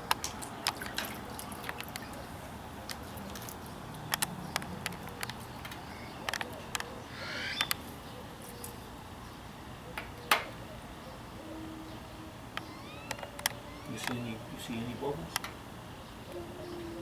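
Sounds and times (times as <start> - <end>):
water dripping and splashing: 0.0 - 6.5.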